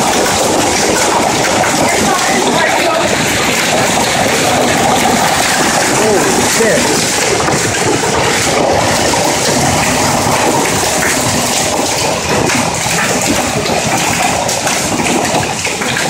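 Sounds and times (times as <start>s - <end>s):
hailstones clattering: 0.0s - 16.0s.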